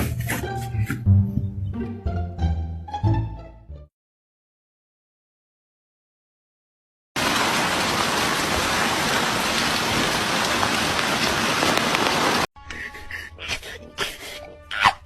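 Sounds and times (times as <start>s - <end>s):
hiss of water with patter: 7.2s - 12.5s.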